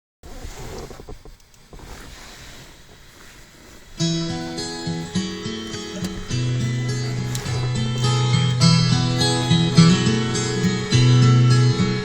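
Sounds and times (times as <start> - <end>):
acoustic guitar playing chords: 4.0 - 12.0.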